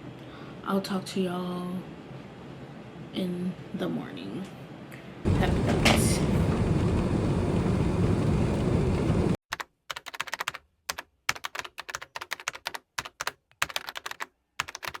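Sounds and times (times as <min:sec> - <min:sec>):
steady low rumbling: 0:05.3 - 0:09.4
typing on computer keyboard: 0:09.5 - 0:15.0.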